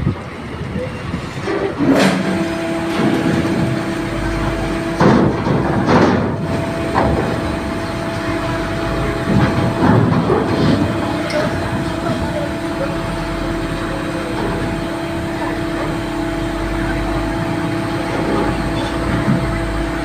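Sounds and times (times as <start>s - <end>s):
steady hum: 0.0s - 20.0s
metal ramp clanks: 1.4s - 13.4s.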